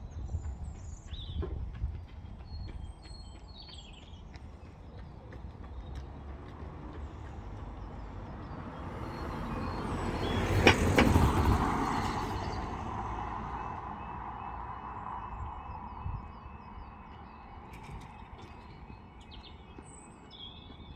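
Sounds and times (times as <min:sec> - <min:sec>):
vehicle driving past: 0:06.5 - 0:16.0.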